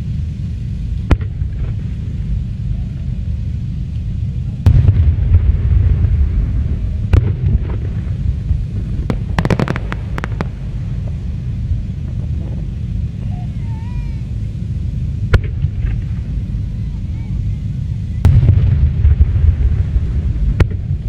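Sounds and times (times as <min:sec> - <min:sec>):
low rumble: 0:00.0 - 0:21.0
fireworks bangs and cracks: 0:04.6 - 0:13.4, 0:18.2 - 0:21.0.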